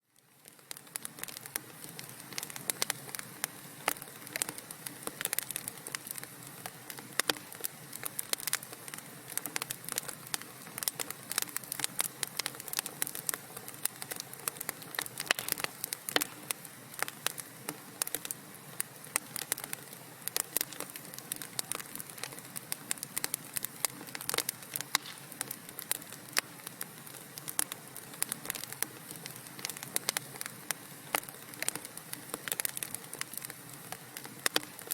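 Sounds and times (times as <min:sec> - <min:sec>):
wood fire crackling: 0:00.1 - 0:34.9.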